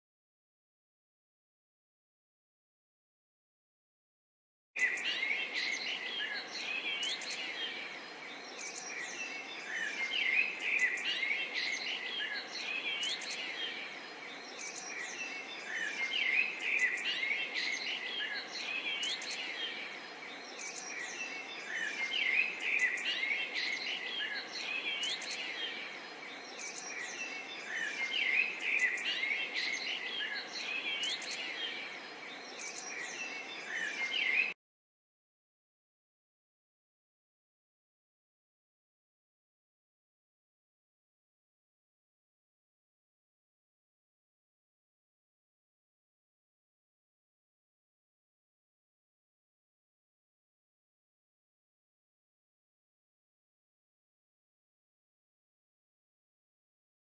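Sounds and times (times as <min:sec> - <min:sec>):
chorus of birds chirping: 0:04.8 - 0:34.6.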